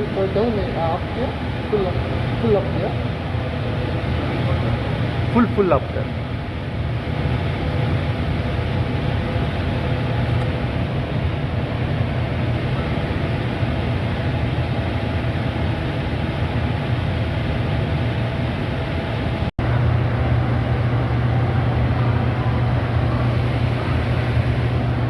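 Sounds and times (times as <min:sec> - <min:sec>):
faint steady tones: 0:00.0 - 0:15.0, 0:19.6 - 0:25.0
air conditioner humming: 0:00.0 - 0:25.0.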